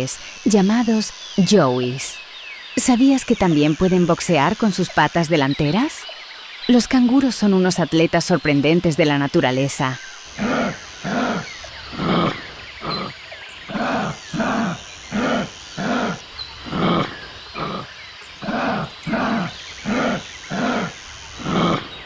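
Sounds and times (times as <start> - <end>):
kangaroo grunting: 10.2 - 22.0.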